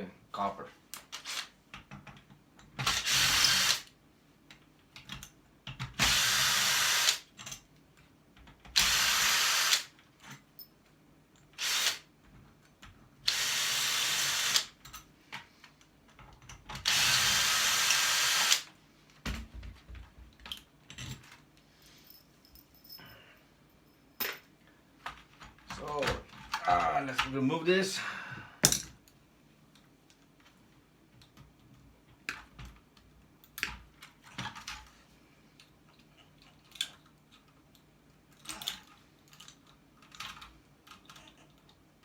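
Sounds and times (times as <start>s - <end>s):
power drill bursts: 2.8s - 3.9s, 6.0s - 7.2s, 8.8s - 9.9s, 11.6s - 12.1s, 13.3s - 14.8s, 16.8s - 18.7s.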